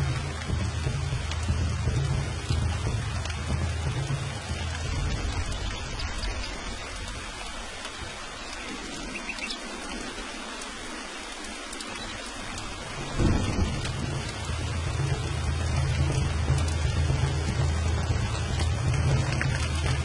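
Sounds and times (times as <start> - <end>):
steady rain falling: 0.0 - 20.0
thunder rumbling: 0.0 - 20.0.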